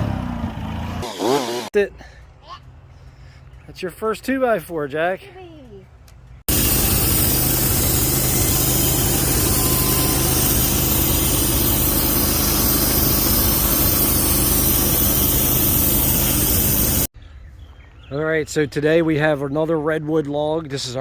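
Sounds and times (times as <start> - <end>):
sawmill engine running: 0.0 - 1.7, 6.5 - 17.1
dense rushing noise: 6.5 - 17.1.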